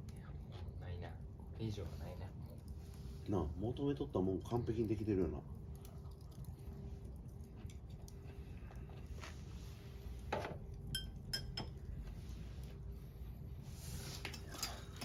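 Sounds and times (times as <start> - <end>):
metal utensils clinking on cookware: 10.9 - 11.8, 14.2 - 15.0.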